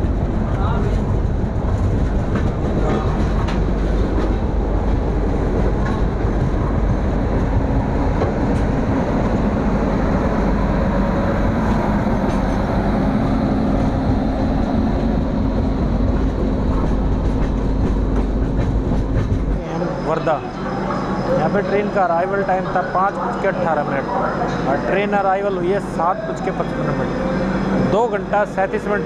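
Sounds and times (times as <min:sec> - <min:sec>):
train wheels rumbling on track: 0:00.0 - 0:29.0.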